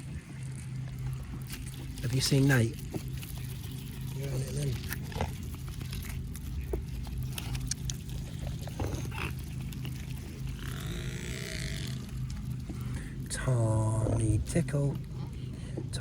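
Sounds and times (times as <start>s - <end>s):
steady low hum: 0.0s - 16.0s
rustling: 0.4s - 15.9s
swans calling: 4.8s - 13.3s.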